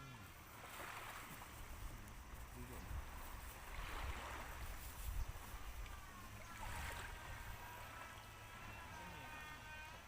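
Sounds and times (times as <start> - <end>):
water moving: 0.0 - 9.0
wind rumble on microphone: 0.9 - 8.0.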